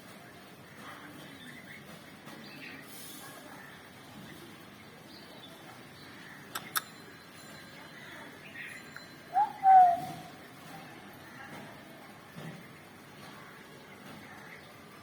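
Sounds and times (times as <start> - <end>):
sharp clicks: 6.5 - 6.9
bird call: 8.6 - 10.4.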